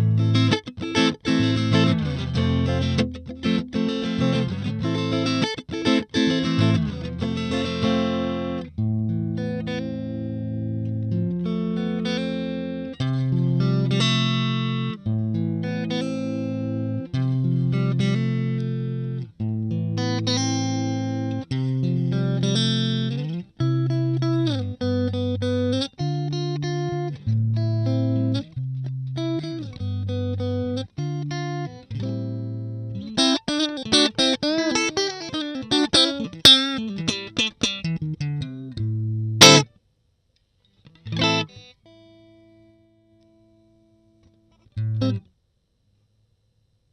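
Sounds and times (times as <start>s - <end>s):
electric guitar playing: 0.0s - 39.7s, 40.9s - 43.2s, 44.7s - 45.2s
guitar pick strike: 0.0s - 39.8s, 40.9s - 41.7s, 44.5s - 45.3s.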